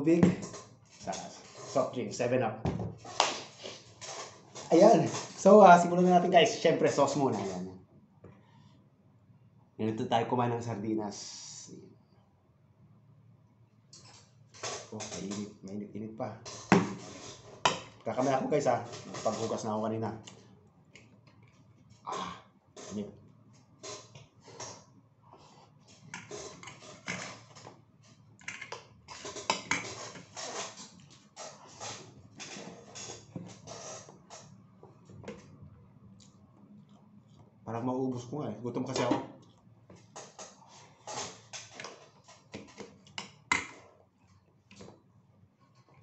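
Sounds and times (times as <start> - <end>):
man chewing food: 23.4 - 37.6.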